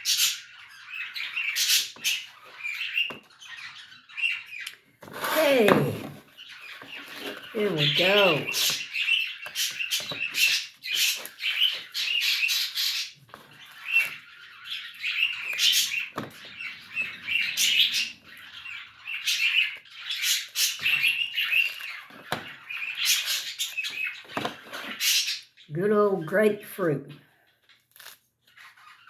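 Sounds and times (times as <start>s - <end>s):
small birds chirping: 0.0s - 26.6s, 28.4s - 29.0s
fruit rind being peeled: 27.9s - 28.2s.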